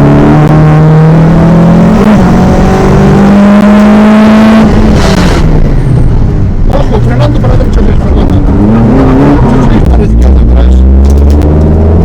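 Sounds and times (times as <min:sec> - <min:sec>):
rally car engine pulling hard: 0:00.0 - 0:12.0.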